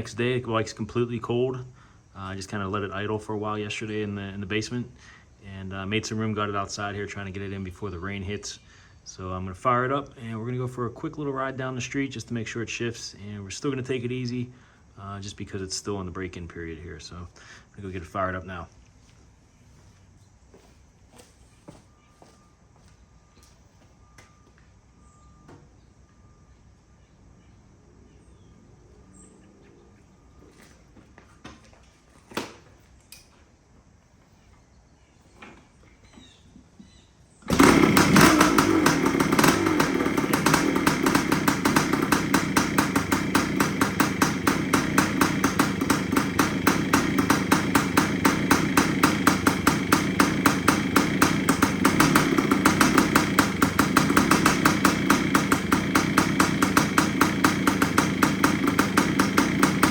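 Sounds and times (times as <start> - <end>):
two-stroke engine starting and idling: 0.0 - 0.4, 37.4 - 59.9.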